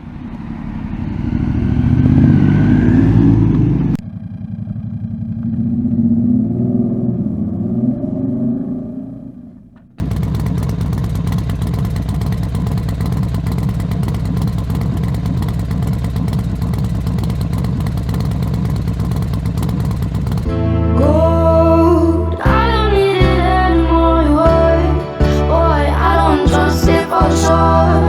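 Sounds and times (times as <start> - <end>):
motorcycle engine running: 0.0 - 7.9, 9.8 - 20.7
music with singing: 20.5 - 28.0.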